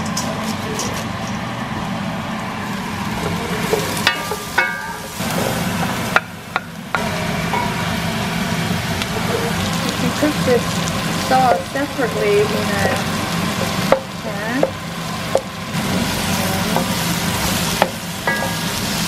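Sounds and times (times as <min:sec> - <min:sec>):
meat and vegetables sizzling: 0:00.0 - 0:19.0.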